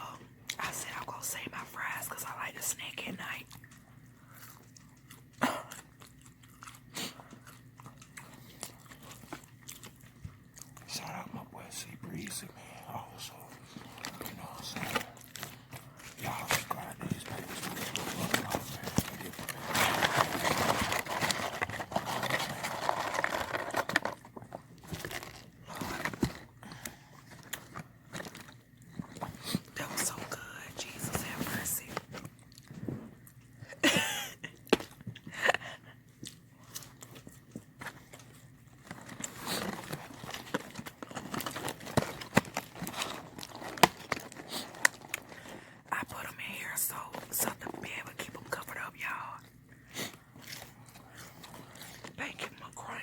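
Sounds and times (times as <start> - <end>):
chewing: 3.4 - 10.9, 32.2 - 33.6.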